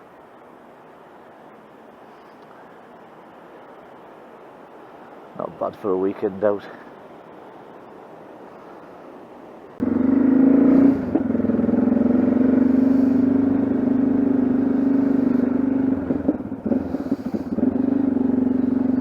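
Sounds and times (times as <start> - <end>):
motorcycle engine running: 9.8 - 19.0.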